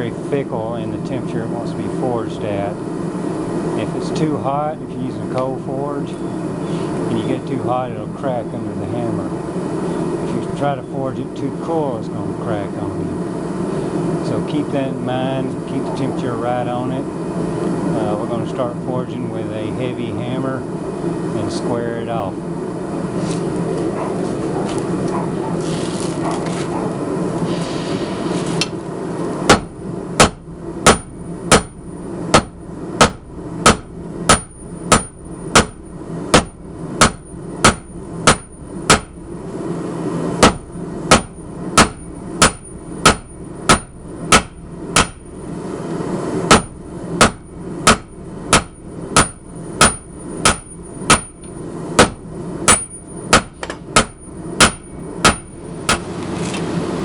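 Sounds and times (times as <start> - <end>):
hammer striking metal on anvil: 29.5 - 39.2, 40.4 - 45.3, 46.5 - 56.1.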